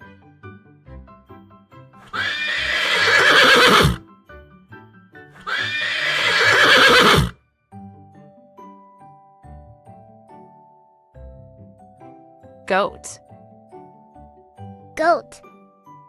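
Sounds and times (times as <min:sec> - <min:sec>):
light children's music: 0:00.0 - 0:02.7, 0:03.9 - 0:05.8, 0:07.4 - 0:16.0
horse neighing: 0:02.1 - 0:04.0, 0:05.4 - 0:07.4.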